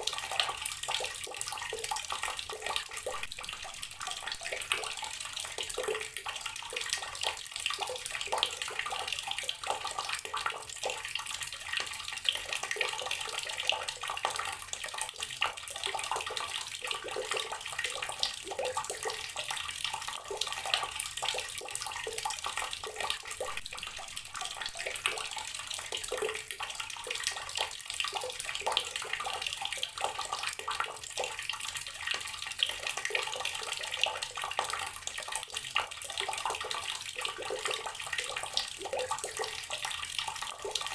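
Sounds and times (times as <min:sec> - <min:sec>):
tap water running and splashing: 0:00.0 - 0:40.9.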